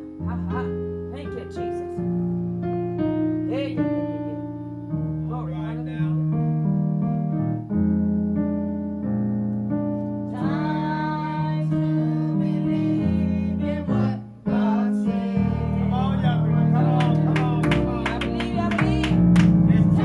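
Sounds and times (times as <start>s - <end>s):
keyboard playing sustained chords: 0.0s - 20.0s
choir singing: 10.4s - 20.0s.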